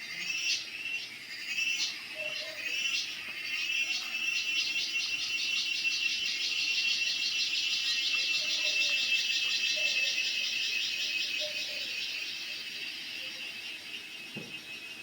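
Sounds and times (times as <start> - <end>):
cicada buzzing: 0.0 - 15.0.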